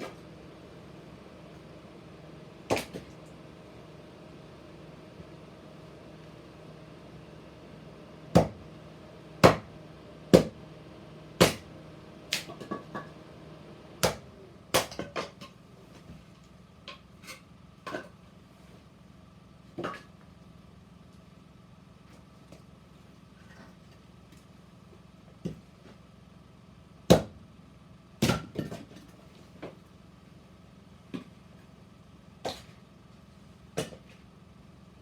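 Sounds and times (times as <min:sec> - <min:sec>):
axe chopping firewood: 0:08.3 - 0:08.6, 0:09.4 - 0:09.7, 0:10.4 - 0:10.6, 0:11.4 - 0:11.7, 0:14.0 - 0:15.3, 0:27.1 - 0:27.4, 0:28.2 - 0:28.8.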